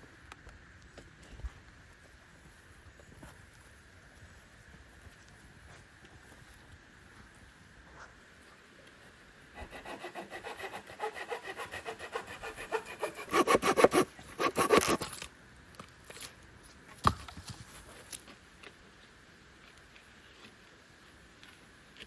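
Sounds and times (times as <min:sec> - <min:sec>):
hand saw cutting wood: 0:09.6 - 0:15.3.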